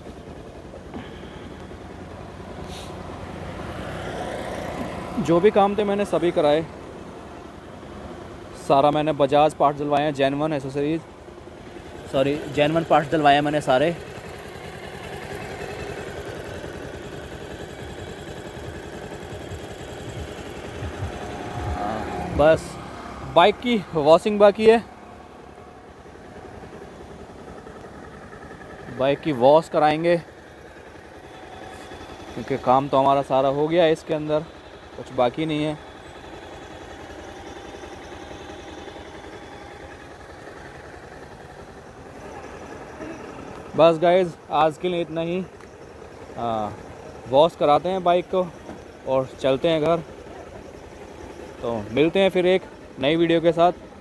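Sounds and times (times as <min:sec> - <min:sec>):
motorcycle engine idling: 0:00.0 - 0:54.0
low thumps: 0:20.0 - 0:22.9.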